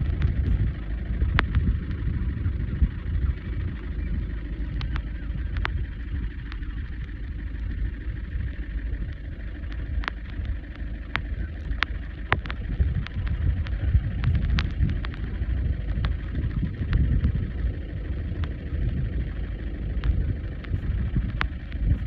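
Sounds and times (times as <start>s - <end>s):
faint sharp ticks: 0.0s - 22.0s
wind buffeting microphone: 0.0s - 22.0s.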